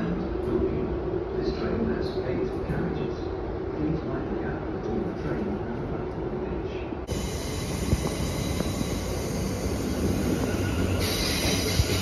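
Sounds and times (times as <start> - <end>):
wheels rumbling on rails: 4.8 - 12.0
faint high whine: 6.7 - 12.0.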